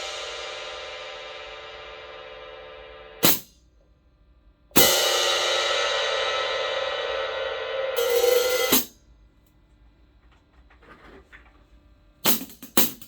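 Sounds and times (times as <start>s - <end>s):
open hi-hat ringing: 0.0s - 3.7s, 4.7s - 9.1s.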